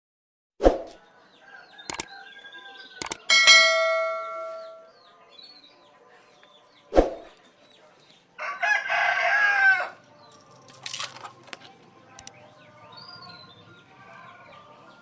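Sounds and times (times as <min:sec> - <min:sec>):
rooster crowing: 0:01.1 - 0:04.8, 0:08.4 - 0:10.0
short clicks: 0:01.9 - 0:02.1, 0:03.0 - 0:03.3.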